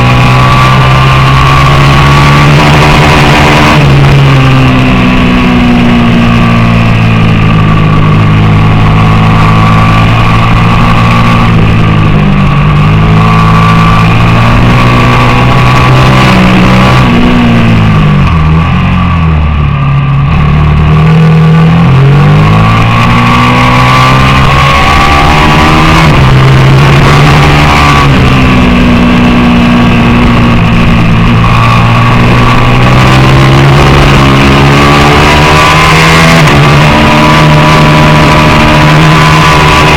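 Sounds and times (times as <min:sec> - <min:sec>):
racing motorcycle engine revving: 0:00.0 - 0:39.9.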